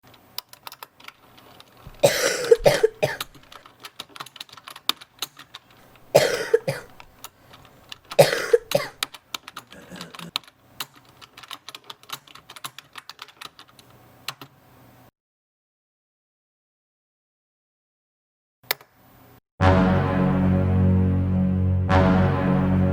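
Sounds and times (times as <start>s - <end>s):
person coughing: 2.0s - 3.3s, 6.2s - 7.0s, 8.2s - 9.0s, 9.7s - 10.3s.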